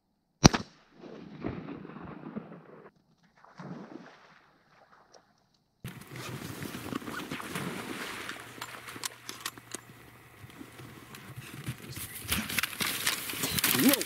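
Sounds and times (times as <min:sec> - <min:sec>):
footsteps on bank: 0:03.0 - 0:14.0
rustling: 0:05.8 - 0:14.0.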